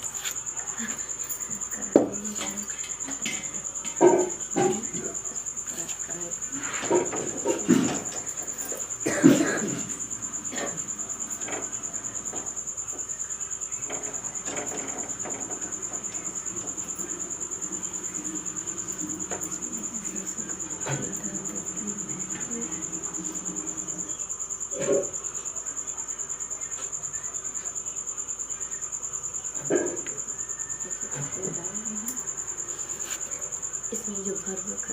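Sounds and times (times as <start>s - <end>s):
cricket chirping trill: 0.0s - 34.9s
kitchen handling knocks and clicks: 1.8s - 5.4s, 6.7s - 12.6s.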